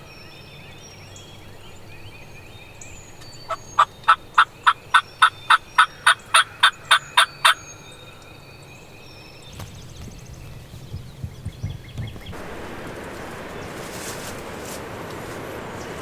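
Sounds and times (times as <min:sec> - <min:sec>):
turkey yelping: 0:03.5 - 0:07.8
faint rustling: 0:09.3 - 0:16.0
wind noise: 0:09.5 - 0:16.0.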